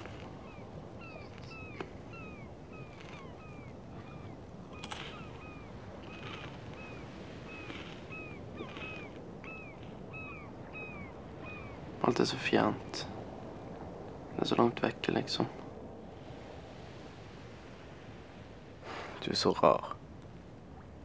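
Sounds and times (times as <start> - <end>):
bird chirping: 0.0 - 11.9
soft crackle: 0.0 - 19.2.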